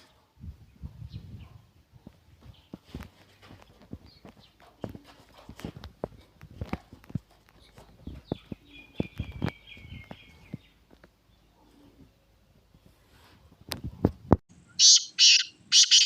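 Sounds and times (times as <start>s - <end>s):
high chattering bird notes: 14.6s - 16.0s.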